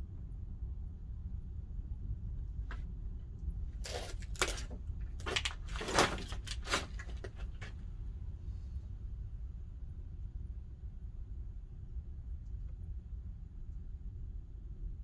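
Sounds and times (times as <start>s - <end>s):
kiln fire rumbling: 0.0s - 15.0s
sharp cracks and knocks: 3.8s - 7.8s.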